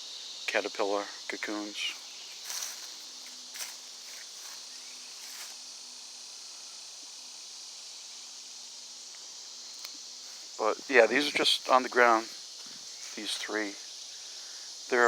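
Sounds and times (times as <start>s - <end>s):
high-pitched insect chorus: 0.0s - 15.0s
faint rustling clicks: 1.9s - 5.6s.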